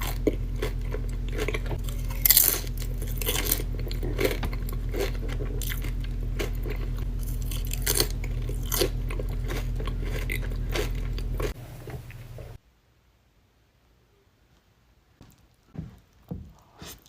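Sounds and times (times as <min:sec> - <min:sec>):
crunchy chewing: 0:00.0 - 0:12.6
steady low hum: 0:00.0 - 0:12.6.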